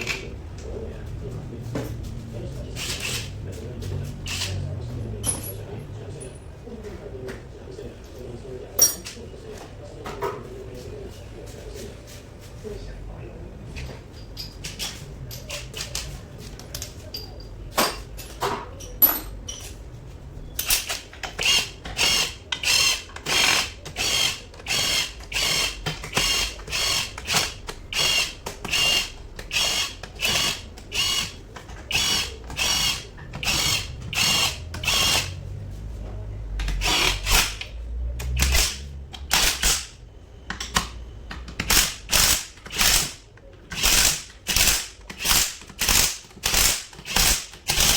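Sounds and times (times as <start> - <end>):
ratchet wrench clicking: 20.6 - 35.3, 36.6 - 40.0, 41.6 - 47.9.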